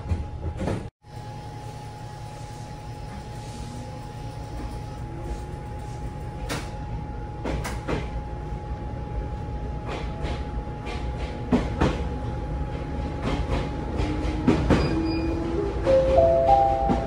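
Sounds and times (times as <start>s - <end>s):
low train rumble: 0.0s - 17.0s
train wheels clicking over rail joints: 9.8s - 16.2s.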